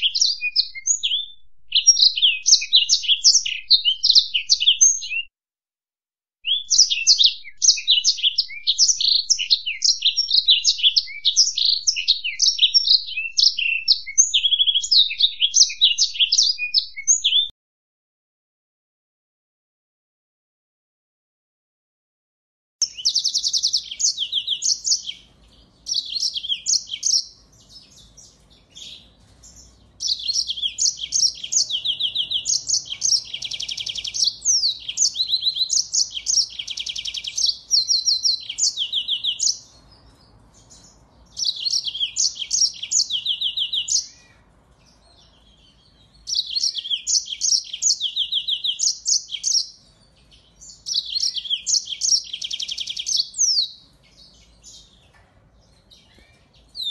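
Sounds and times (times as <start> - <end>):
finches twittering trills: 22.8 - 56.9.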